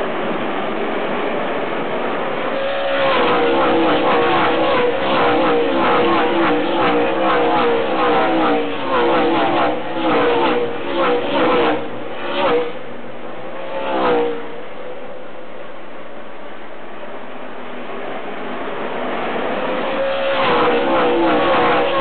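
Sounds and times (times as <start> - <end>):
race trucks accelerating past: 0.0 - 14.8, 18.4 - 22.0.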